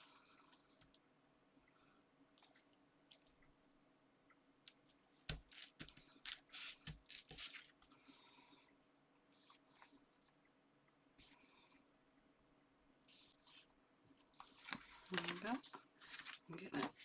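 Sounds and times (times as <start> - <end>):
paper and card handled: 5.3 - 7.8, 13.1 - 17.0.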